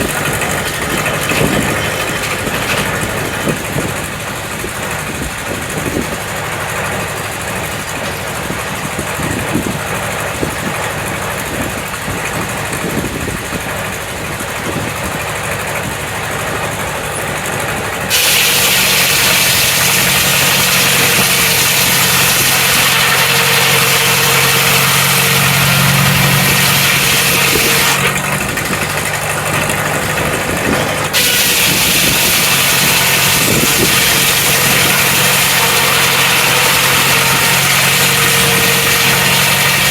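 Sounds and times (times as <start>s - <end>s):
sawmill engine running: 0.0s - 39.9s
loud high hiss: 18.1s - 28.2s, 31.1s - 39.9s.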